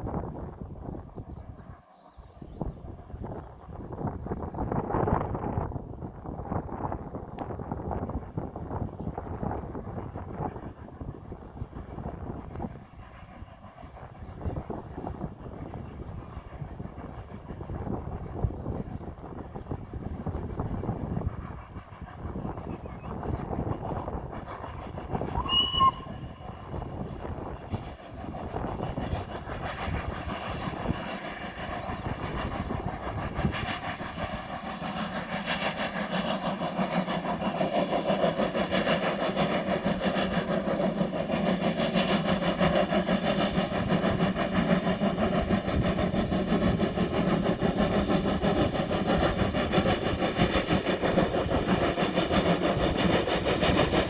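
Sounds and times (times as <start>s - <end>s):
steam locomotive exhaust and running: 0.0s - 54.0s
steam locomotive whistle: 25.3s - 26.9s.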